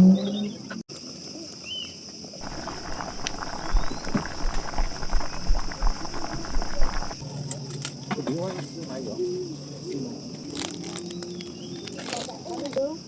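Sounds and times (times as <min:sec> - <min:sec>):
crackling: 0:02.4 - 0:07.2
low rumbles: 0:02.4 - 0:07.2
low-pitched hum: 0:02.4 - 0:07.2.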